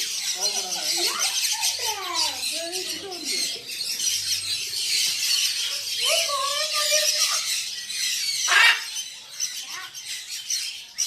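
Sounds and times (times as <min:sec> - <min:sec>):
birds chattering and twittering: 0:00.0 - 0:11.0
high drawn-out bird cry: 0:00.0 - 0:11.0
loud harsh squawk: 0:08.3 - 0:09.0.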